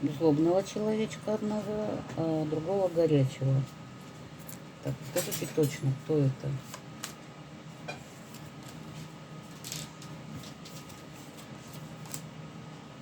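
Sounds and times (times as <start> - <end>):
cards being shuffled: 8.3 - 12.3.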